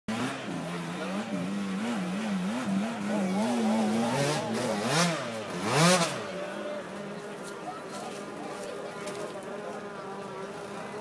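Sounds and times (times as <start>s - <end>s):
racing engine revving: 0.1s - 6.4s.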